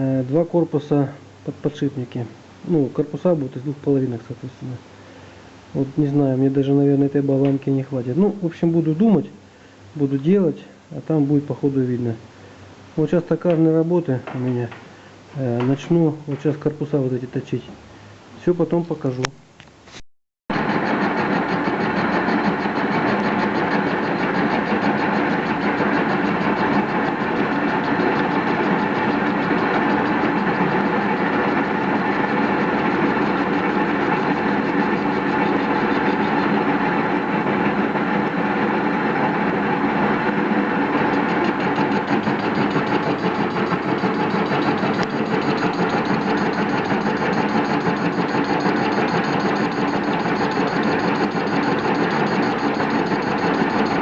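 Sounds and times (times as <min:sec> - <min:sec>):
metal lathe running: 0:20.5 - 0:54.0.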